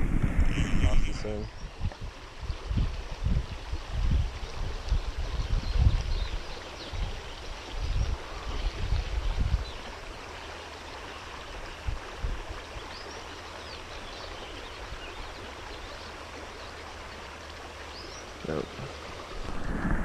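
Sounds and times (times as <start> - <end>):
low rumbles on microphone: 0.0 - 6.4, 18.7 - 20.0
stream water rushing: 0.0 - 20.0.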